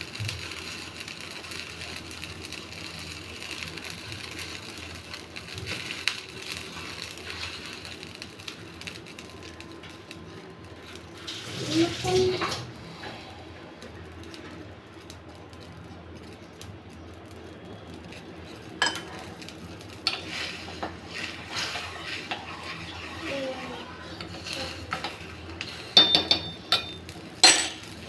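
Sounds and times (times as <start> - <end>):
spoon stirring in a pot: 18.1 - 28.0
spoon clinking on metal: 18.8 - 19.4, 24.9 - 28.0.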